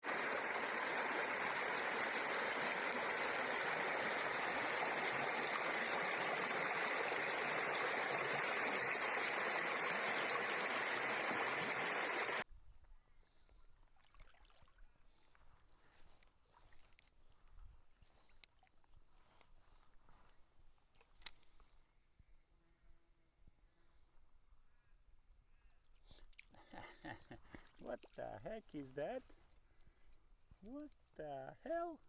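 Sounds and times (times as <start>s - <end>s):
mountain stream rushing: 0.0s - 12.4s.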